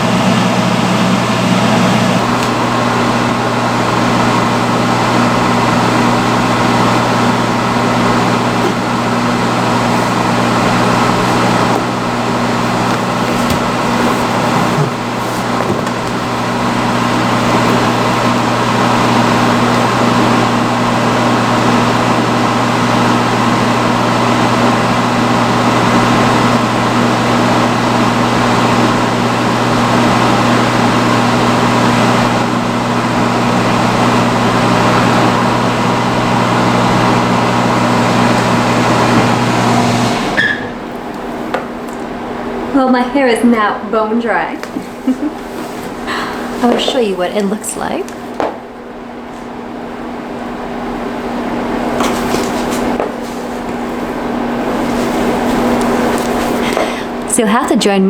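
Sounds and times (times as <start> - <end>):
hood hair dryer fan rush: 0.0 - 42.8, 43.6 - 57.4.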